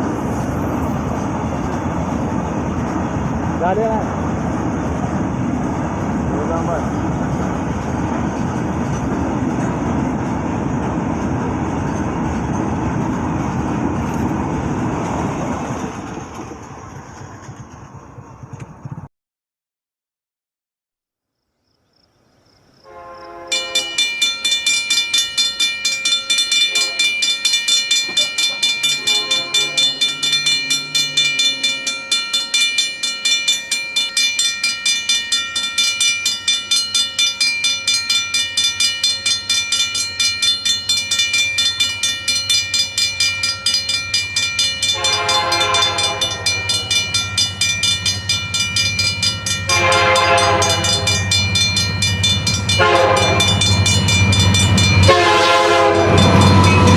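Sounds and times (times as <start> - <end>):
locomotive engine rumble: 0.0 - 19.1, 27.8 - 33.9, 39.5 - 56.9
train horn blasts: 22.8 - 24.0, 26.6 - 27.3, 28.8 - 31.7, 44.9 - 47.1, 49.7 - 51.4, 52.7 - 53.9, 55.0 - 56.9
rhythmic wheel clatter: 23.8 - 55.1.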